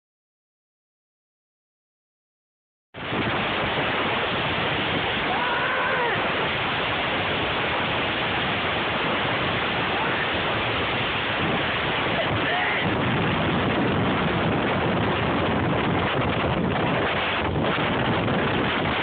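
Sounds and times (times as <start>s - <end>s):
gale wind noise on microphone: 3.0s - 19.0s.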